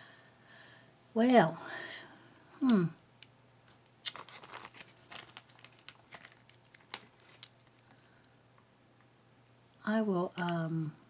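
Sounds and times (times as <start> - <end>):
bracelet clicks and rustles: 3.2 - 8.3.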